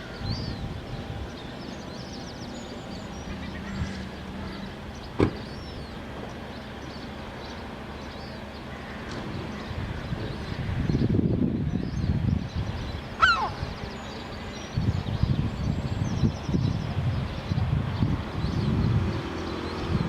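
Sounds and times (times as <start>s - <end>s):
low rumble of traffic: 0.0s - 20.0s
faint high bird chirps: 11.6s - 16.7s.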